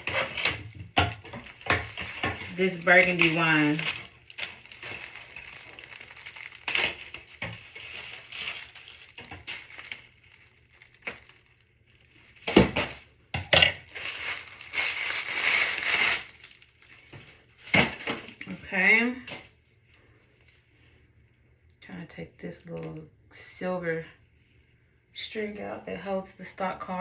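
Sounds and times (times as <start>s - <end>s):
packaging crinkling: 0.0s - 13.2s, 13.8s - 18.6s.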